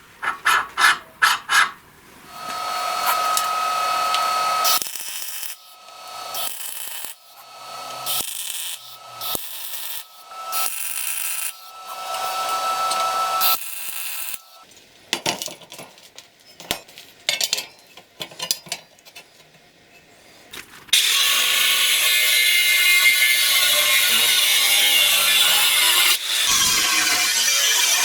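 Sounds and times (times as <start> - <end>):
power tool grinding metal: 2.3 - 14.6, 21.0 - 28.0.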